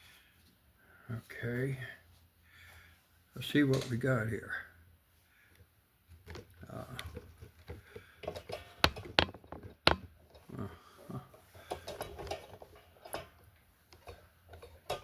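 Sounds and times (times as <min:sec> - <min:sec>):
handling sounds: 0:06.1 - 0:10.4
sharp clicks and knocks: 0:06.2 - 0:10.4.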